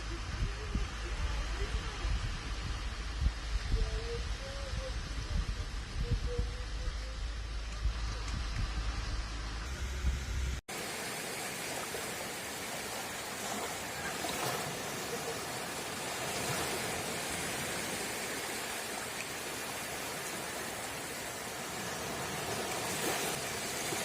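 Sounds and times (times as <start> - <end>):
gentle surf washing on shore: 10.7 - 24.0.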